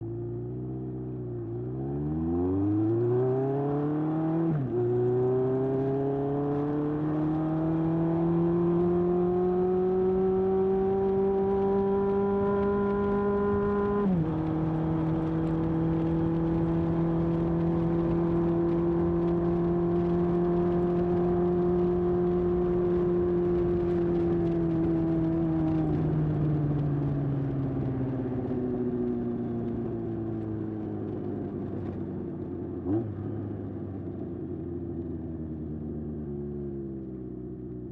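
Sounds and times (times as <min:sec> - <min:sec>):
motorcycle engine revving and shifting: 0:00.7 - 0:32.1, 0:32.7 - 0:33.7.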